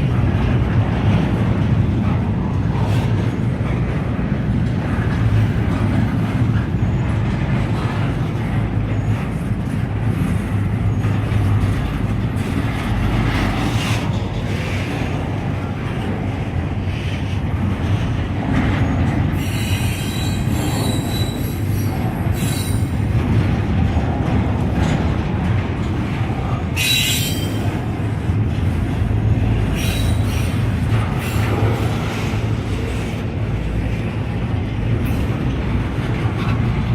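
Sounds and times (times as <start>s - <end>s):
train wheels rolling on rail: 0.0s - 36.9s
high-pitched wheel squeal: 19.4s - 22.9s, 26.8s - 27.6s.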